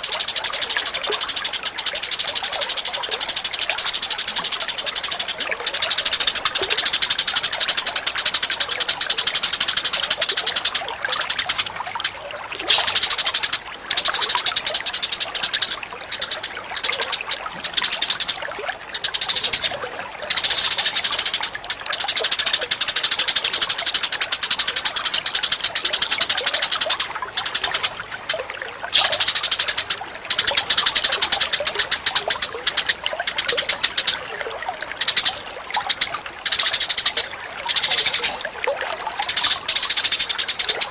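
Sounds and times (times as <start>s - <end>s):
high-pitched chattering bird calls: 0.0s - 40.9s.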